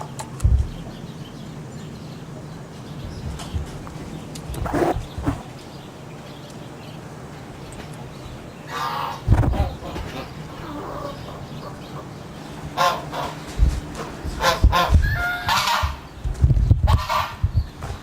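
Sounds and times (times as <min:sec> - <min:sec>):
low thumps: 0:00.4 - 0:01.0, 0:03.0 - 0:05.5, 0:09.3 - 0:10.3, 0:13.4 - 0:15.2
geese honking: 0:08.7 - 0:16.0, 0:16.9 - 0:17.4.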